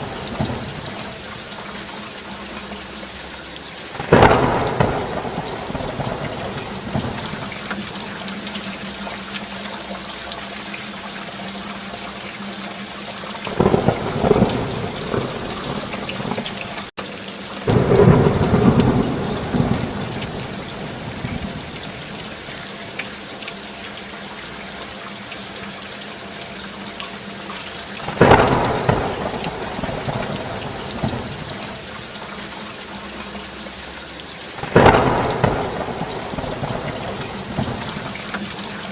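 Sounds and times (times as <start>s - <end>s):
thunder rumbling: 0.0s - 1.4s, 4.0s - 8.2s, 13.5s - 16.9s, 17.7s - 22.5s, 28.0s - 32.0s, 34.6s - 38.9s
steady rain: 0.0s - 38.9s.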